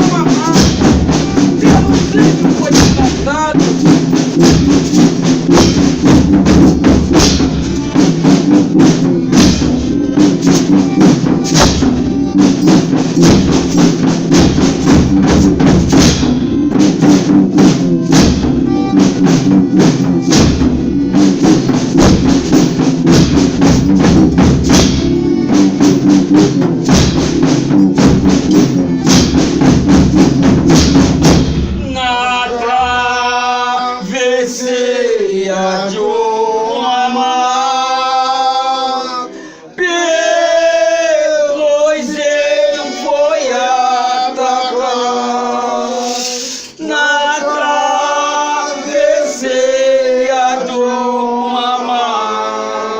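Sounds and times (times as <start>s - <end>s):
drum and tambourine strokes: 0.0s - 33.4s, 45.8s - 46.9s.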